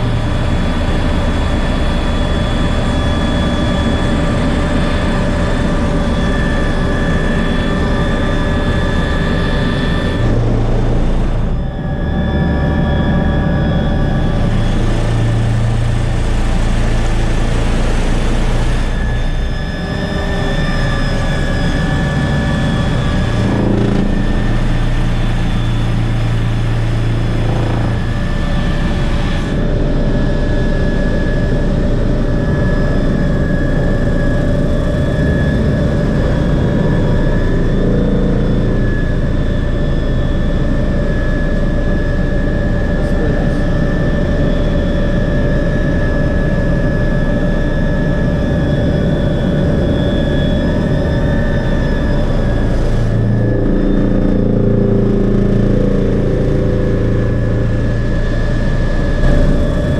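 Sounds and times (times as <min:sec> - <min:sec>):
helicopter rotor drone: 0:00.0 - 0:59.9
helicopter turbine whine: 0:00.0 - 0:59.9.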